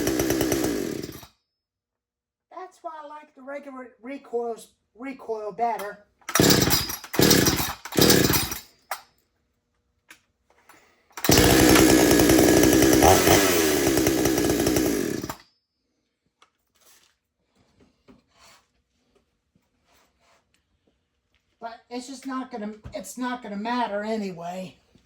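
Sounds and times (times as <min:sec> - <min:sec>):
chainsaw pull-starting and running: 0:00.0 - 0:01.3, 0:06.2 - 0:09.0, 0:11.1 - 0:15.4.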